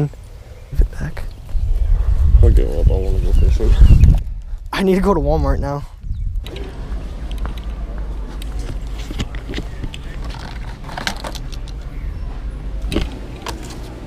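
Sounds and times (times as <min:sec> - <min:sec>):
light clicks and rattles: 0:06.4 - 0:12.0.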